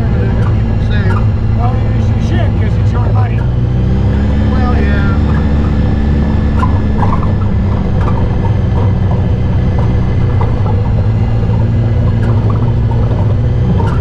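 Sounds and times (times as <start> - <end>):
off-road vehicle engine running: 0.0 - 14.0
light knocks and rattles: 6.5 - 14.0.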